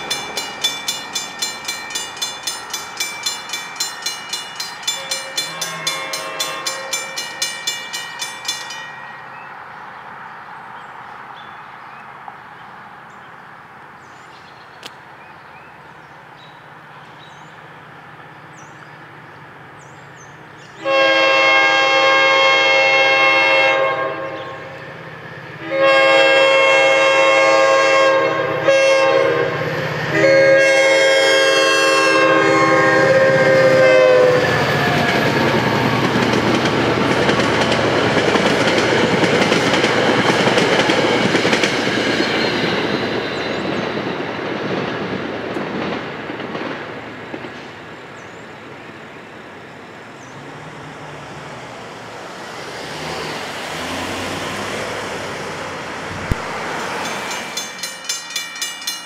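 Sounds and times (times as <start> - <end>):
train wheels clacking on rails: 0.0 - 9.1, 32.2 - 48.0, 52.3 - 59.0
train horn: 4.9 - 7.2, 20.8 - 24.8, 25.6 - 35.9.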